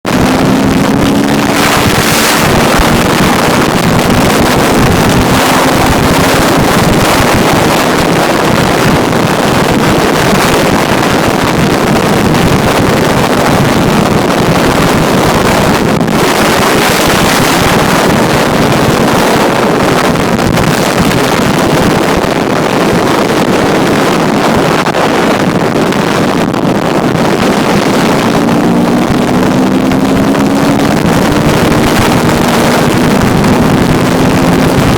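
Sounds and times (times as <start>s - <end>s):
dirt bike engine running: 0.0s - 34.9s
wind buffeting microphone: 0.0s - 34.9s.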